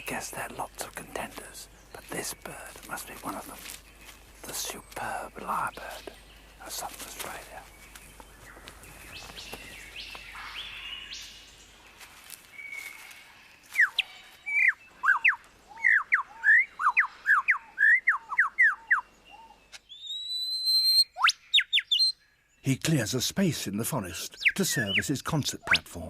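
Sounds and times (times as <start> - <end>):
lyrebird singing whistled notes: 13.8 - 22.2, 24.3 - 25.9.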